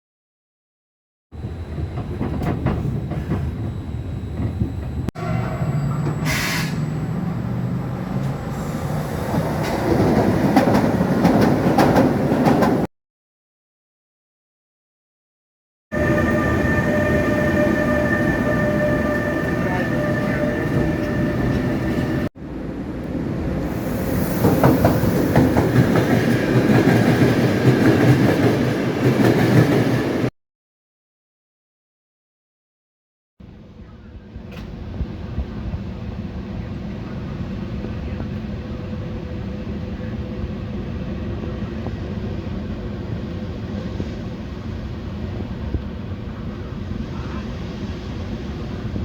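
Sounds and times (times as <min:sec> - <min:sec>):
train rumbling on rails: 0:01.4 - 0:12.9, 0:15.9 - 0:30.3, 0:33.5 - 0:49.0
brief hiss: 0:06.2 - 0:06.8.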